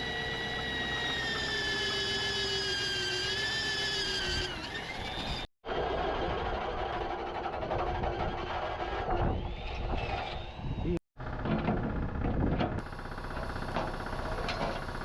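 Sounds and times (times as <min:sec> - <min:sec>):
power tool whining: 0:00.0 - 0:05.9.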